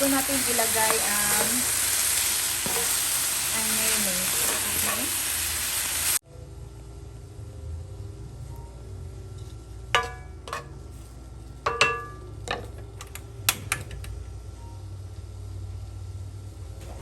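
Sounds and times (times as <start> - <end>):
chicken frying: 0.0 - 6.2
utensil clinking on metal pan: 10.0 - 10.8, 11.6 - 14.1.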